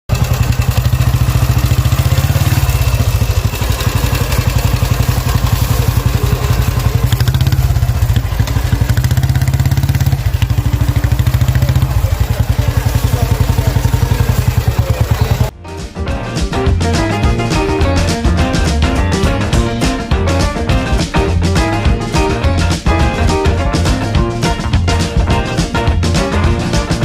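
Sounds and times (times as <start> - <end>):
motorcycle engine idling: 0.1 - 15.5.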